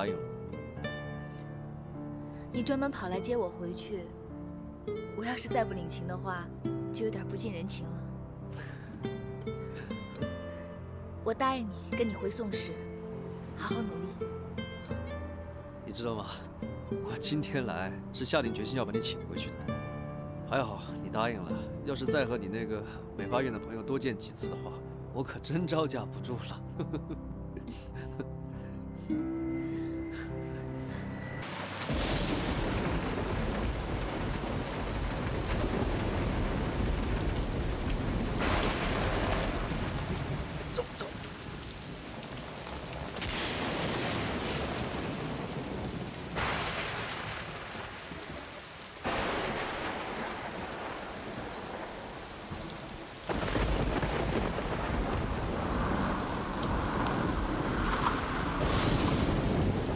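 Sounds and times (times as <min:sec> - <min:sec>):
heavy rain pouring: 0:31.4 - 0:59.9
thunder rolling: 0:31.4 - 0:59.9.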